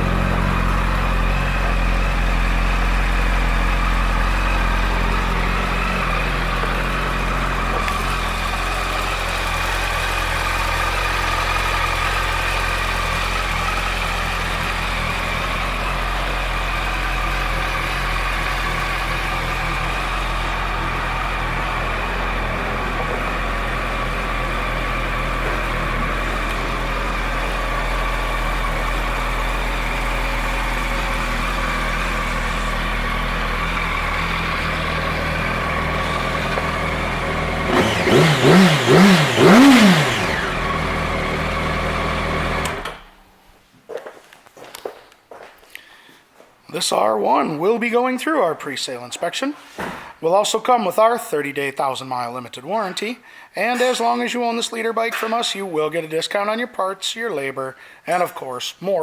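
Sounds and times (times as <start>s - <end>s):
motorcycle engine idling: 0.0s - 43.2s.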